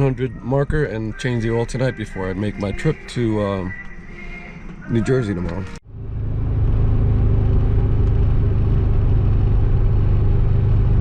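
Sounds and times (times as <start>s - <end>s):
car engine droning while driving: 2.4s - 11.0s.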